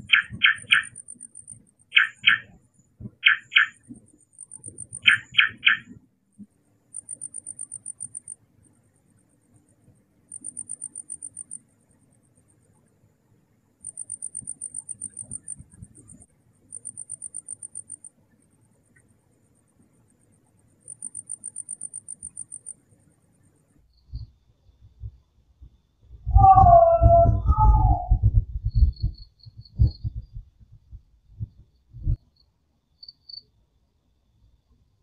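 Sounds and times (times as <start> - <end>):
cricket trilling: 0.0 - 6.0, 6.8 - 8.8, 10.3 - 12.7, 13.8 - 24.4, 26.3 - 30.4, 31.4 - 33.6.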